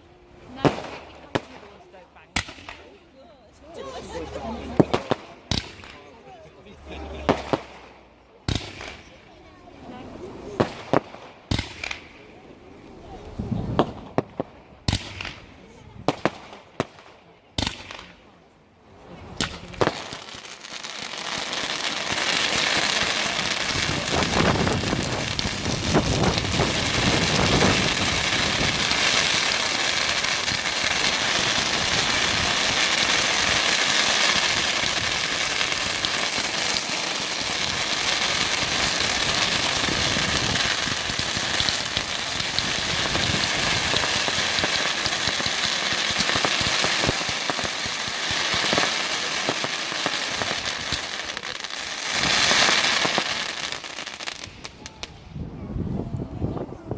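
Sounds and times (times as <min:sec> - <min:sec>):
fireworks low bangs: 0:00.0 - 0:03.0, 0:03.7 - 0:18.3, 0:19.0 - 0:56.9
fireworks crackling: 0:00.0 - 0:18.3, 0:19.0 - 0:55.3.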